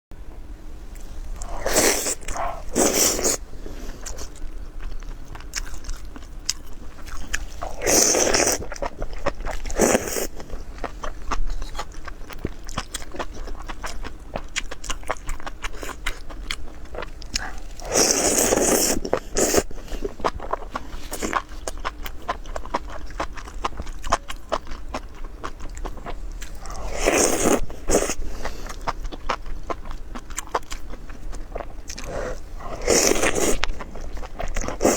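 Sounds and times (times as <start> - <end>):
crunchy bites: 4.0 - 10.9, 14.9 - 19.7, 31.9 - 34.9.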